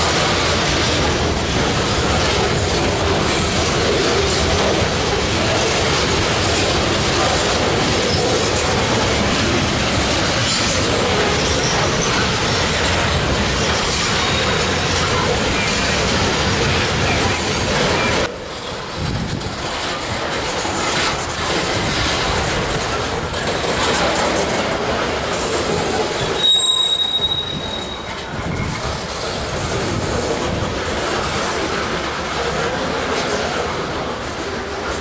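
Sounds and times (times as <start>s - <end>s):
freight train wheels rumbling: 0.0s - 35.0s
high-pitched wheel squeal: 26.2s - 28.7s.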